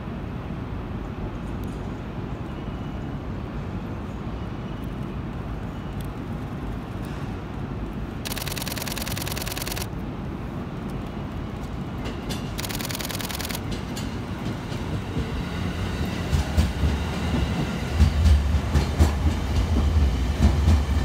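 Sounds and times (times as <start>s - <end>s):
electric train rumbling: 2.9s - 21.0s
camera shutter clicks: 8.3s - 9.9s, 12.6s - 13.6s.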